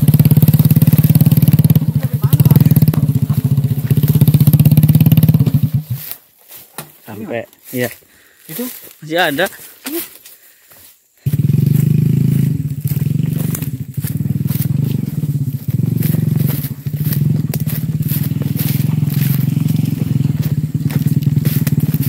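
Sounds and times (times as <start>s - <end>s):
motorcycle engine running: 0.0s - 6.2s, 11.2s - 22.0s.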